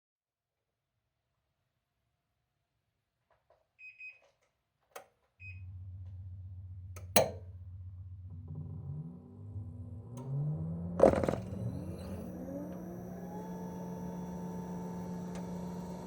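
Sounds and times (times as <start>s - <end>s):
air conditioner tones: 5.4s - 16.0s
air conditioner click: 7.0s - 7.4s.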